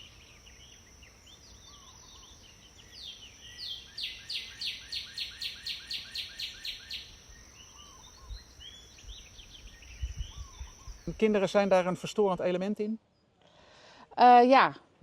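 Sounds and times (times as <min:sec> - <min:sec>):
songbird singing quick notes: 0:00.0 - 0:11.4
bird chirps: 0:00.0 - 0:11.6.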